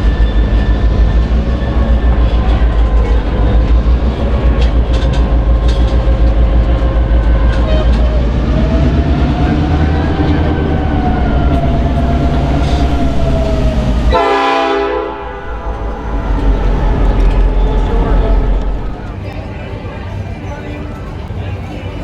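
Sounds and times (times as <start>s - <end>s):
diesel train engine rumble: 0.0s - 22.0s
shrill multi-tone train horn: 6.9s - 19.1s.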